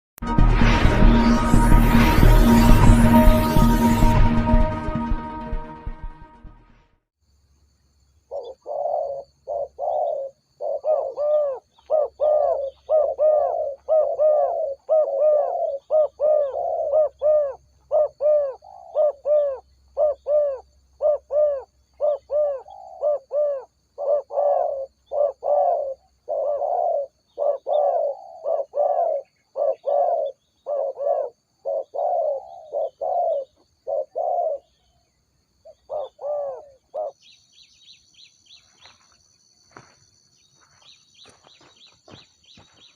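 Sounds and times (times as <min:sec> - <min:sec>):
dove cooing: 0:08.3 - 0:34.7, 0:35.7 - 0:37.2.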